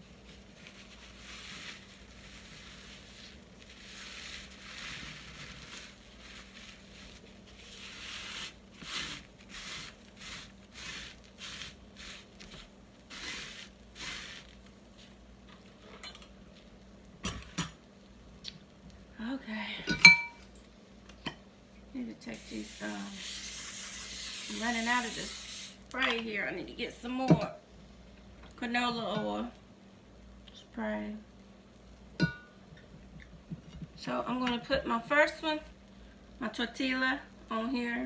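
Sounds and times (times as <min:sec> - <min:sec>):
spray can hissing bursts: 0:22.4 - 0:25.8.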